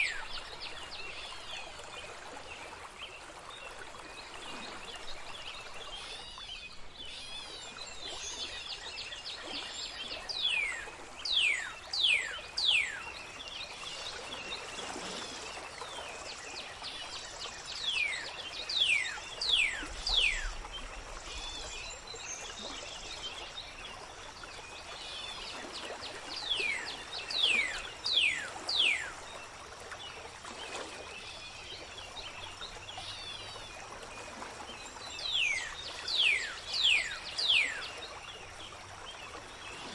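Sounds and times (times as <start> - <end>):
water trickling: 8.4 - 39.9.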